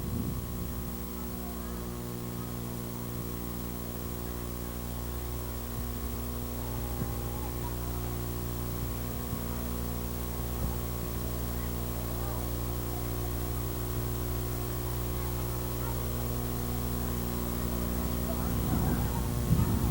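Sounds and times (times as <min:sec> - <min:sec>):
electrical mains hum: 0:00.0 - 0:19.9.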